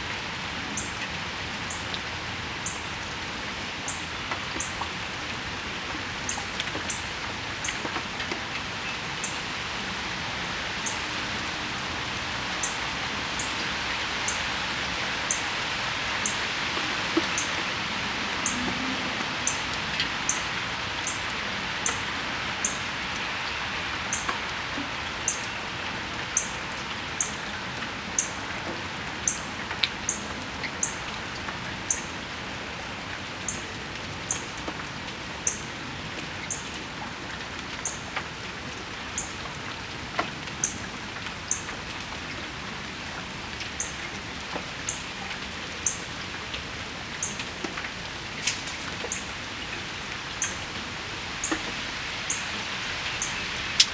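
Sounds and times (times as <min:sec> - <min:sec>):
rain falling on patio: 0:00.0 - 0:53.9
small bird chirping: 0:48.4 - 0:49.3.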